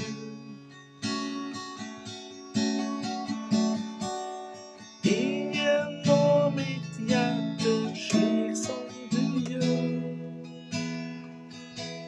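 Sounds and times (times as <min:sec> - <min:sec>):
person singing: 0:00.0 - 0:00.7, 0:05.0 - 0:10.8
acoustic guitar strumming: 0:00.0 - 0:12.0.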